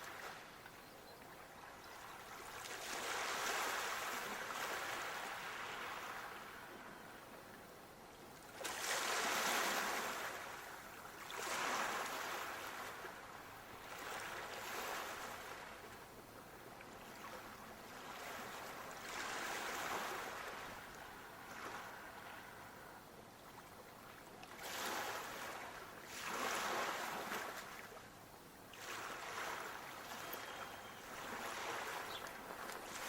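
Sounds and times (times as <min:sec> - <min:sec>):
ocean waves washing in: 0:02.5 - 0:07.0, 0:08.6 - 0:15.8, 0:24.6 - 0:27.9.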